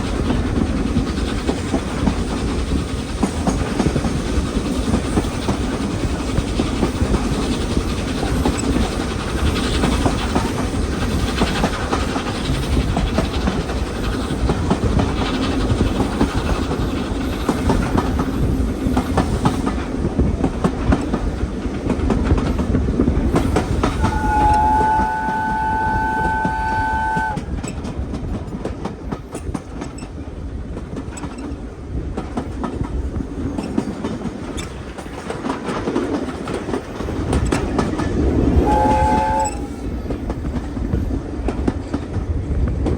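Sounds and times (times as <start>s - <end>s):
train rumbling along track: 0.0s - 42.9s
locomotive whistle: 23.9s - 27.7s, 38.5s - 40.0s.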